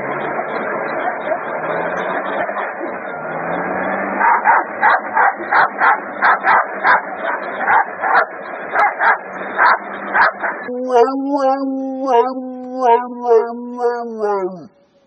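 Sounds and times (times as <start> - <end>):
dog barking: 4.2 - 14.6.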